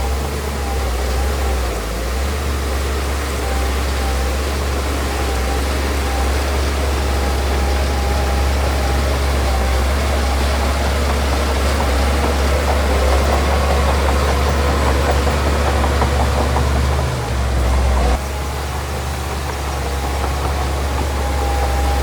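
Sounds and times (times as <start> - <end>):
diesel engine rumbling: 0.0 - 22.0
rapid clatter: 6.6 - 22.0.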